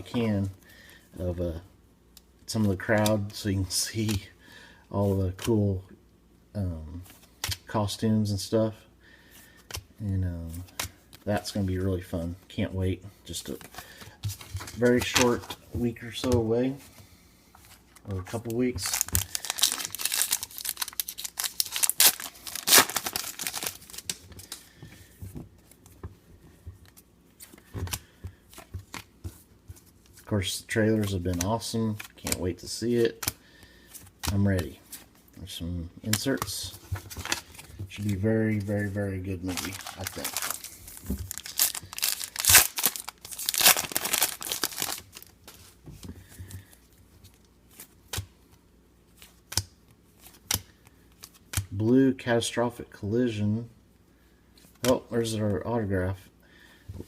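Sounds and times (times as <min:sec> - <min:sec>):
cards clicking and rustling: 0:13.5 - 0:15.6, 0:17.9 - 0:24.8, 0:31.0 - 0:33.4, 0:39.4 - 0:46.7
wrapper crinkling and tearing: 0:18.8 - 0:24.6, 0:39.4 - 0:45.3.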